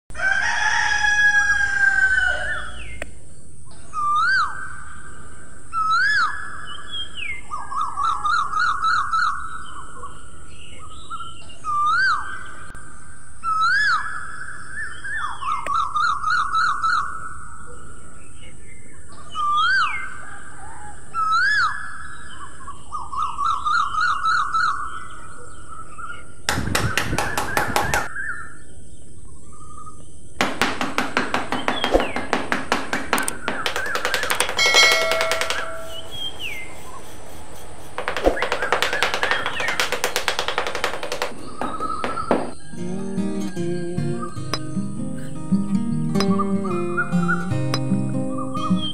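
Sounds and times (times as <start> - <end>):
buzzy bird trills: 33.7 - 40.0
steady high hiss: 34.3 - 39.0
birdsong whistled notes: 34.6 - 38.5, 41.9 - 48.9.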